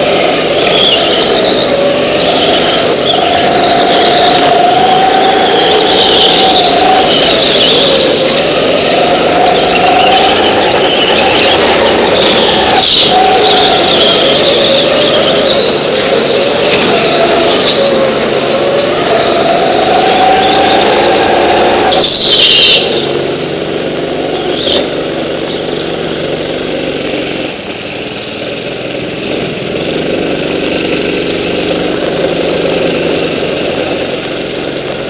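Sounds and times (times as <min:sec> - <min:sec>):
go-kart engine running: 0:00.0 - 0:35.0
loud high screech: 0:00.1 - 0:23.1.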